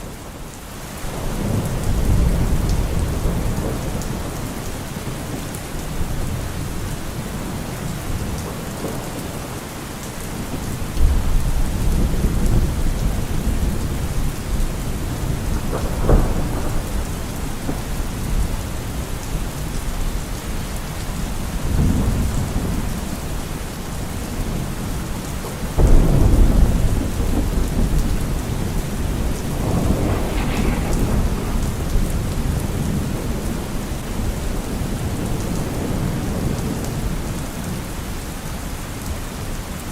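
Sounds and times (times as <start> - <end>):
heavy rain: 0.0 - 39.9
rolling thunder: 1.1 - 24.8, 25.7 - 37.8
sharp thunder crack: 15.0 - 18.5, 25.8 - 34.3.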